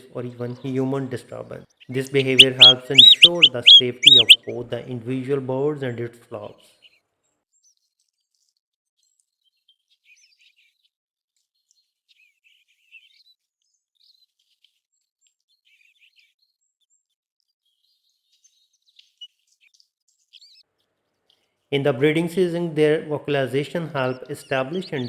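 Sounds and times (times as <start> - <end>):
bird chirping and twittering: 1.9 - 4.6.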